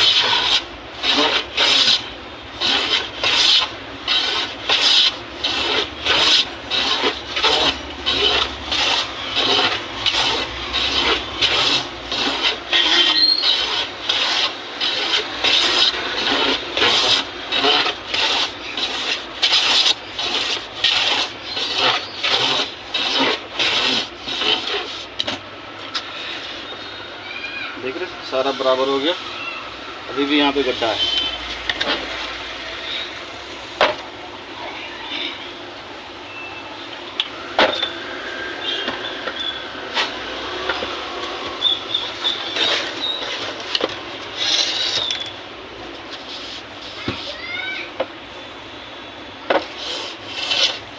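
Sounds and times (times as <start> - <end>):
hand tool scraping wood: 0.0 - 27.0, 30.2 - 33.0, 37.2 - 48.2, 49.5 - 50.9.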